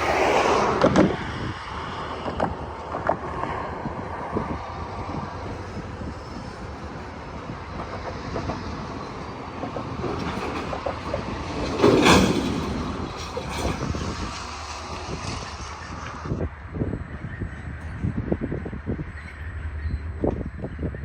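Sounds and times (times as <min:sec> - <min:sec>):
loud rush of noise: 0:00.0 - 0:11.8
freight train rumbling: 0:00.0 - 0:21.0
train wheels clicking and knocking: 0:04.8 - 0:16.4.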